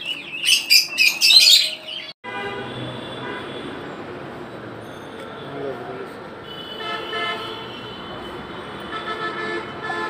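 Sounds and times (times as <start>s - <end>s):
caged birds chirping and squawking: 0.0s - 2.2s.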